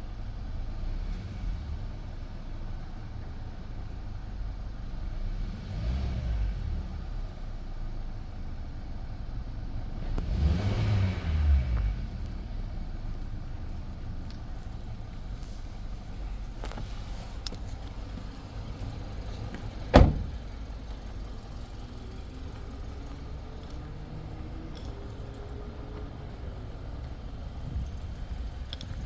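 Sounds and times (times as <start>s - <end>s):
car engine idling: 12.0s - 29.0s
loud thump: 19.9s - 20.6s.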